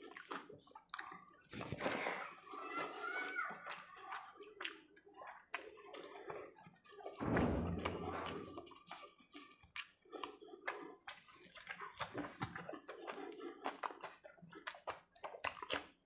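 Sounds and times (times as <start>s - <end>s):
wet chewing: 0.0s - 7.2s, 7.8s - 16.0s
low hum: 7.2s - 8.7s.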